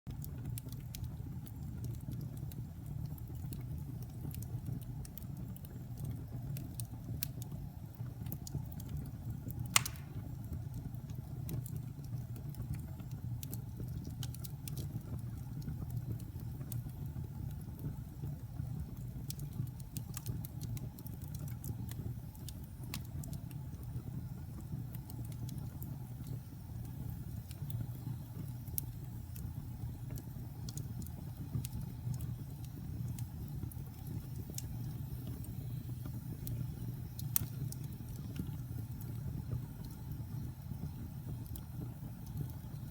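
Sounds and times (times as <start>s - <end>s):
wood fire crackling: 0.1s - 42.9s
sharp pop from fire: 9.7s - 10.4s.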